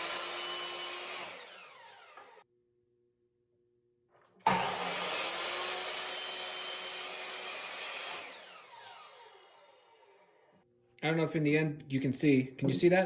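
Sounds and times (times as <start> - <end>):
miter saw cutting wood: 0.0 - 2.4, 4.4 - 10.5.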